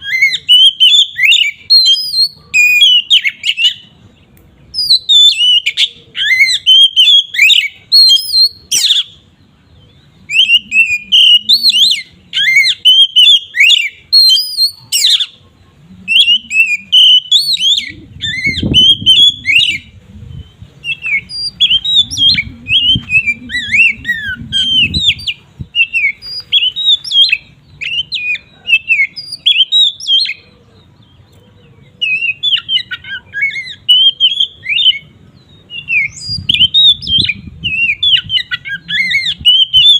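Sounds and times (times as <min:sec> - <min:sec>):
magpie-robin singing: 0:00.0 - 0:39.9
faint low rumble: 0:17.8 - 0:25.8.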